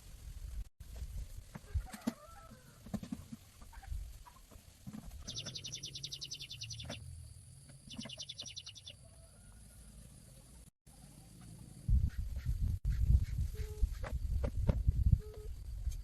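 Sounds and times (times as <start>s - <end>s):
bird trilling: 7.9s - 9.0s.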